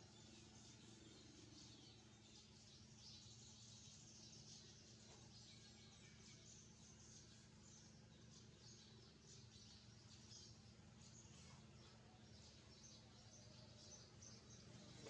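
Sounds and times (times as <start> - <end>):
steady low hum: 0.0 - 15.0
young birds chirping: 0.0 - 15.0.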